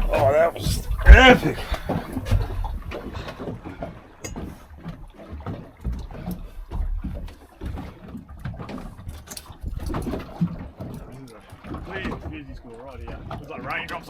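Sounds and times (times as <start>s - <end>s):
low thuds: 0.0s - 3.1s
water slapping boat hull: 0.0s - 14.0s.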